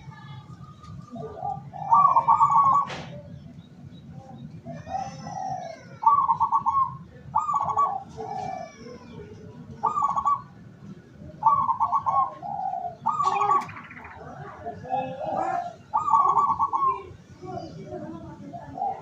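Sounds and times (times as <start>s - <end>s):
dove cooing with rattling trills: 0.0s - 19.0s.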